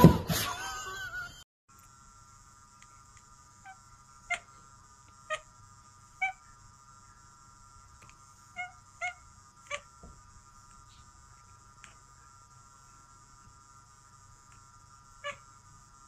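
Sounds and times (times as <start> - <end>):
cat chirping: 3.6 - 4.6, 5.3 - 5.5, 6.2 - 6.5, 8.5 - 9.9, 15.2 - 15.5.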